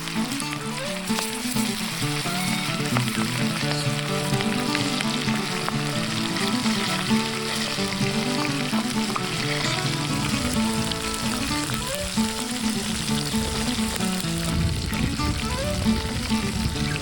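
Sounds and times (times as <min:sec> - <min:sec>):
music track: 0:00.0 - 0:17.0
onions sizzling over fire: 0:00.0 - 0:17.0.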